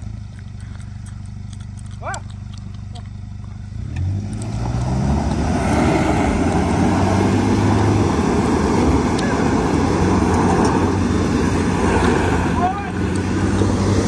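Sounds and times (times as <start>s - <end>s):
tyres spinning on gravel: 0.0s - 5.7s
engines revving hard: 0.0s - 14.0s.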